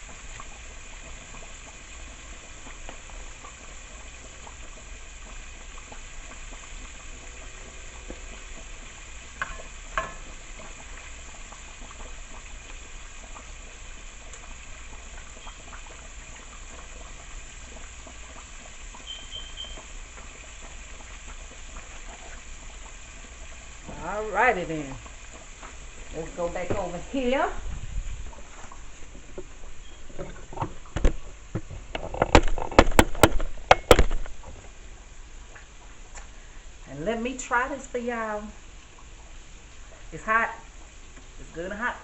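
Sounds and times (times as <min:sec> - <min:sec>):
chicken wings sizzling: 0:00.0 - 0:42.0
faint high beeps: 0:19.0 - 0:19.8
sharp knocks: 0:30.2 - 0:34.4.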